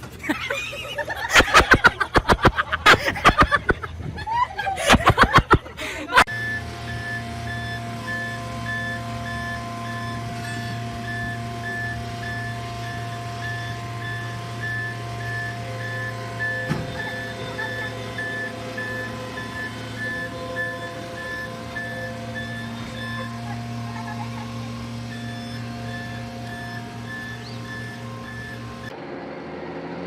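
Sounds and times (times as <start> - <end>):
diesel engine running: 0.0 - 30.0
backup alarm beeping: 6.1 - 28.9.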